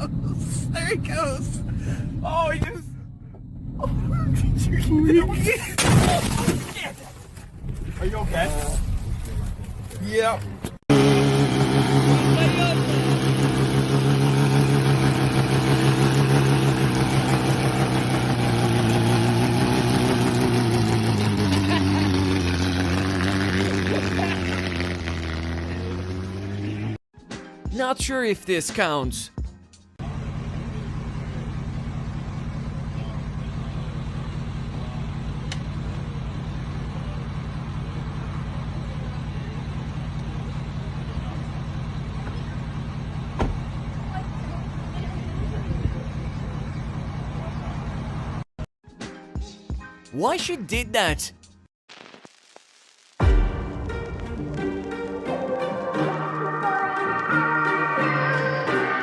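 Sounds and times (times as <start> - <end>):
vehicle engine running: 0.0 - 5.7, 8.3 - 27.0, 30.0 - 48.5.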